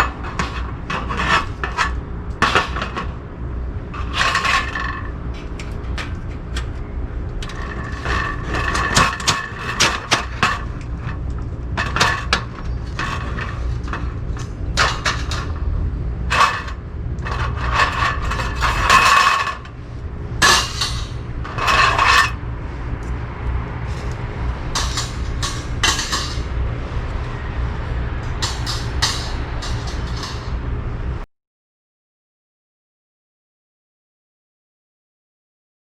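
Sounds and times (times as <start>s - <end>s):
low hum: 0.0s - 31.3s
metal pieces clinking and scraping: 4.0s - 6.7s, 7.4s - 15.7s, 16.3s - 19.8s, 20.4s - 22.4s, 23.9s - 26.5s, 28.2s - 30.6s.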